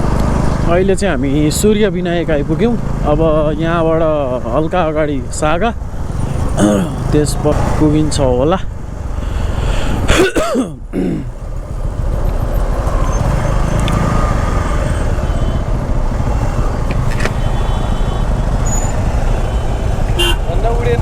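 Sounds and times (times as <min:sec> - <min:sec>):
motorcycle engine running: 0:05.8 - 0:09.3, 0:11.2 - 0:18.6
person speaking: 0:06.0 - 0:07.9.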